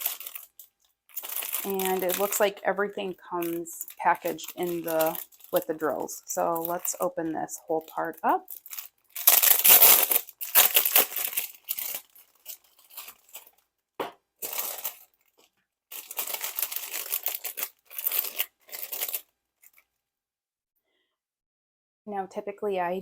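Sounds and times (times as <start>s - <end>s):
packaging torn and crinkled: 0.0s - 2.6s, 3.4s - 7.2s, 7.8s - 13.6s, 14.4s - 19.9s.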